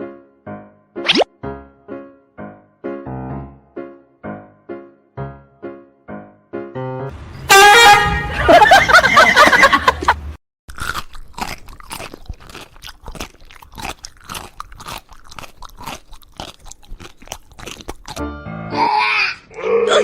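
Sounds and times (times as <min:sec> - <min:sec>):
crunchy food being chewed: 0:10.7 - 0:18.2.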